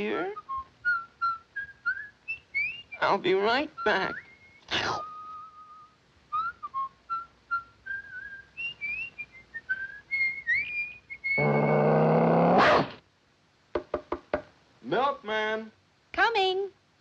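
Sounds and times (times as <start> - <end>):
whistled cartoon tune: 0.3 - 3.1, 3.8 - 11.9.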